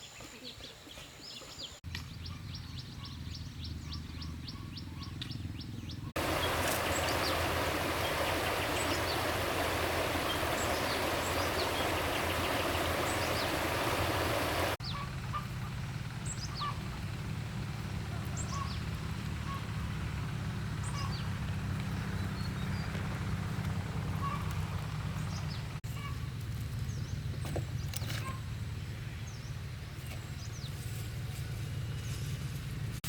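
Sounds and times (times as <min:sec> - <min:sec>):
birds chirping: 0:00.0 - 0:15.4
low steady hum: 0:06.2 - 0:18.1.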